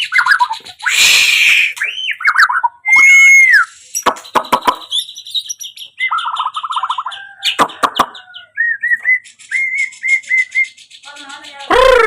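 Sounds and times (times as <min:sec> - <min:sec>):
bird singing: 0:00.0 - 0:12.0.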